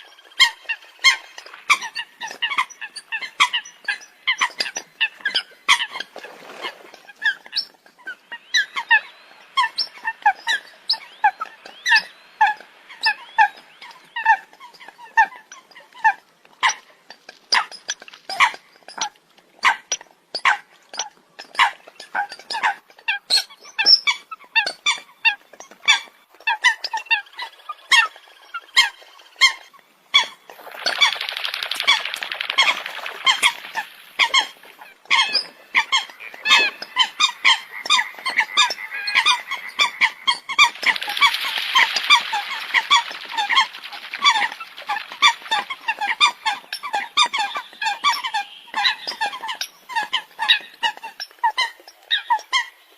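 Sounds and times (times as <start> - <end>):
coots calling: 24.1 - 52.9
flock chorus of bird calls: 26.6 - 52.9.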